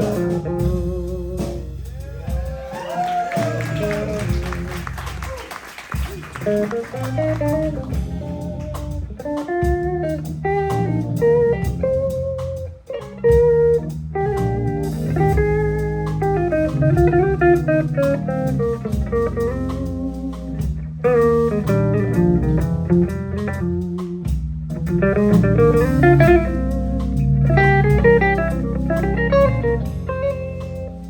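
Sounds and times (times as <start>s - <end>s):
steady low bass: 0.0s - 5.4s, 6.0s - 31.0s
drum kit: 0.0s - 31.0s
electric guitar lead line: 6.4s - 31.0s.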